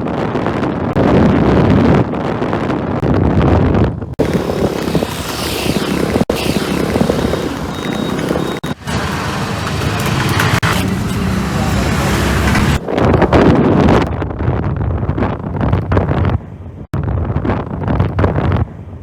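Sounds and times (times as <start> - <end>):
wind buffeting on microphone: 0.0 - 19.0
scooter engine and road noise: 3.9 - 14.2.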